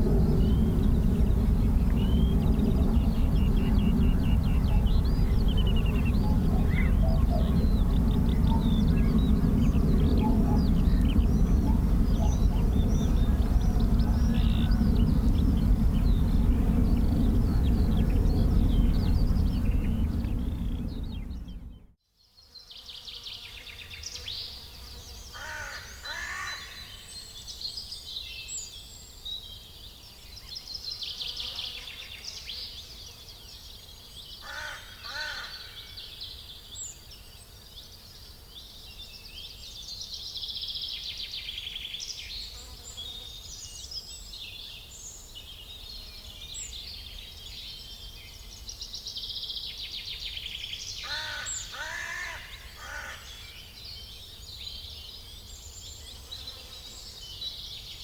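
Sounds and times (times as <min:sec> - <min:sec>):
small birds chirping: 0:00.0 - 0:21.9
steady low rumble: 0:00.0 - 0:22.0.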